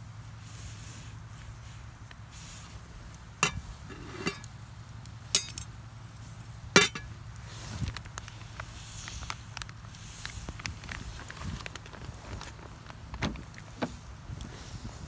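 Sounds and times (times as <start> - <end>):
hard objects clinking: 3.4 - 4.5, 5.4 - 5.7, 6.8 - 7.1.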